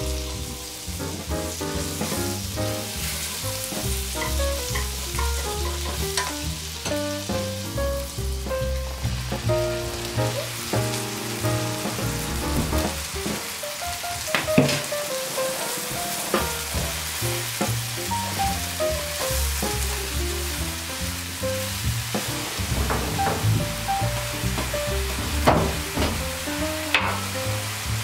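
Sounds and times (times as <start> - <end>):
mushrooms sizzling in a frying pan: 0.0 - 28.0.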